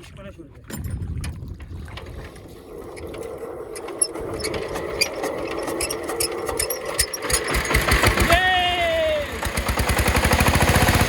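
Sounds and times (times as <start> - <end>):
diesel engine hand-cranked clattering: 2.7 - 8.4
diesel engine firing: 3.5 - 11.0.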